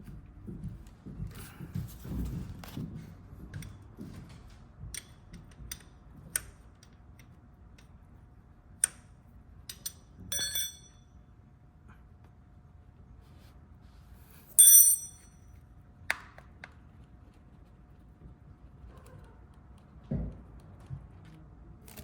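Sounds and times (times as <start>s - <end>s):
hand tools and metal parts clinking: 9.7s - 11.1s, 14.6s - 15.4s
ringing metal clink: 9.7s - 11.2s, 14.6s - 15.4s.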